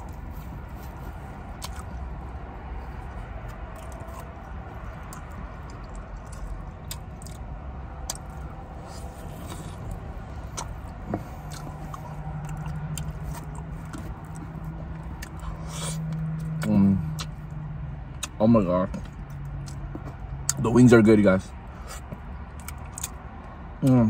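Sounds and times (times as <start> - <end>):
chewing and biting food: 0.0 - 20.6, 21.8 - 24.0
steady low hum: 0.0 - 23.8
low steady rumble: 0.0 - 24.0
wet mouth clicks and lip smacks: 16.4 - 17.4.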